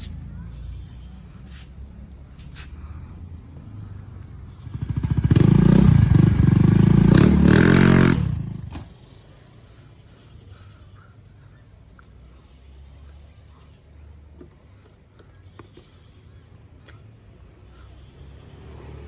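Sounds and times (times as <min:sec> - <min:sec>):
motorcycle engine revving: 0:03.2 - 0:09.0.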